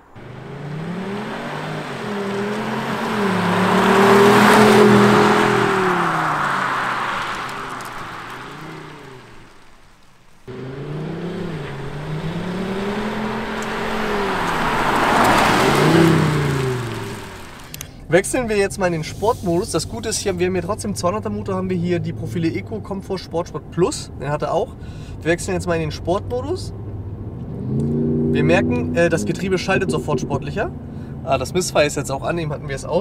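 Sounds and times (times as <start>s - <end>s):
car engine driving past: 0.0s - 17.8s, 26.8s - 31.3s.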